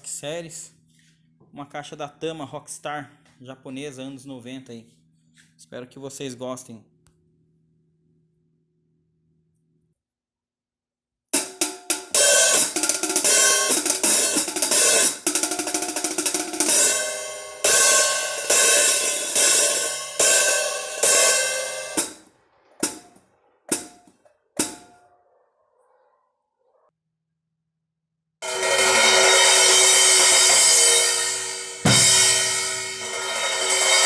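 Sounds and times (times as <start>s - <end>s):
cymbal crashes: 11.4s - 24.0s, 28.4s - 34.0s
drum kit groove: 11.4s - 25.0s, 28.4s - 34.0s.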